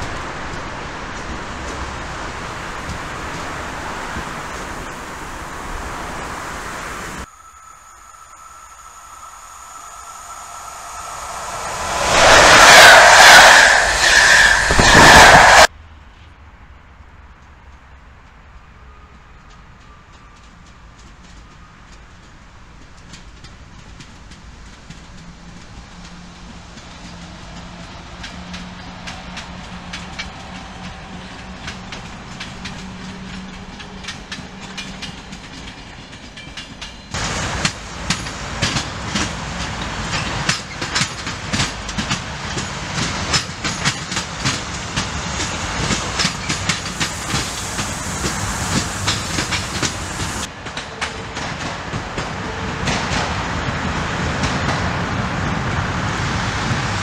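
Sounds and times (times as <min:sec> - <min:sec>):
locomotive rumbling past: 0:00.0 - 0:15.7, 0:20.4 - 0:57.0
train rolling rumble: 0:00.0 - 0:57.0
wheels clacking over rail joints: 0:19.5 - 0:57.0.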